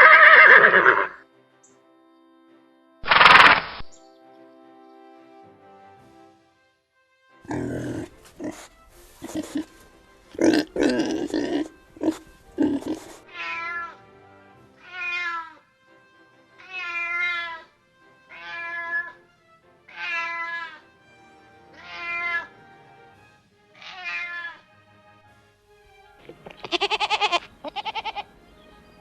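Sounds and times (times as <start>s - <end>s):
cat meowing: 12.9s - 14.0s, 14.8s - 15.6s, 16.6s - 17.7s, 18.3s - 19.2s, 19.9s - 20.8s, 21.8s - 22.5s, 23.8s - 24.7s, 26.5s - 28.3s.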